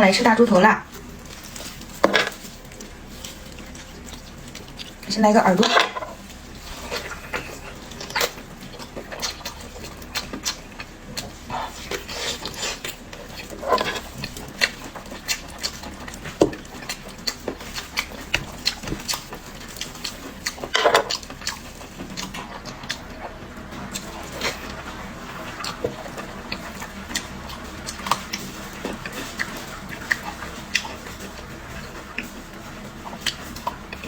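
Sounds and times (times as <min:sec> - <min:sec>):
chewing crunchy food: 0:00.8 - 0:34.0.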